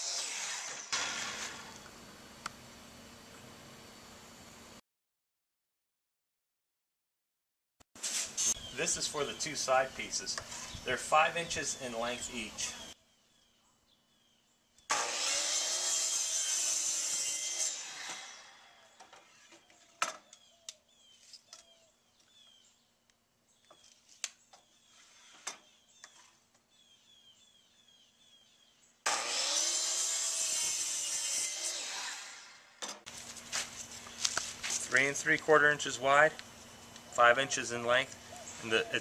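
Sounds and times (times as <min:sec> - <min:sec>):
power saw cutting wood: 0:00.0 - 0:01.9, 0:14.9 - 0:19.7, 0:29.0 - 0:33.0.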